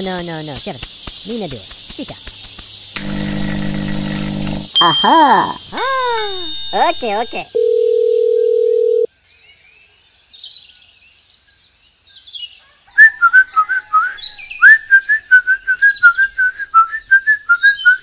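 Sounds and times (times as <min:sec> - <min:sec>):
bird-like whistled chirping: 0:12.9 - 0:18.0.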